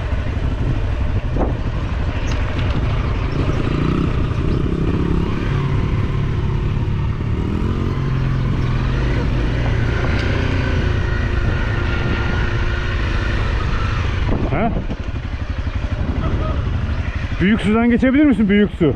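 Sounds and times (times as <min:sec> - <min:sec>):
motorcycle engine running: 0:00.0 - 0:18.9.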